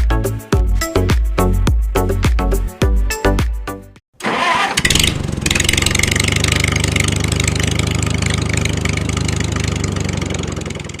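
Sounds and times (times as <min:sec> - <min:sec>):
small tractor engine running: 0:04.2 - 0:11.0.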